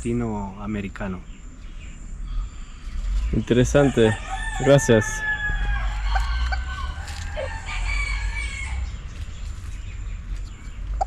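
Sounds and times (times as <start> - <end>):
low rumble: 0.0 - 11.0
rooster crowing: 3.7 - 9.0
fowl call: 4.8 - 8.2.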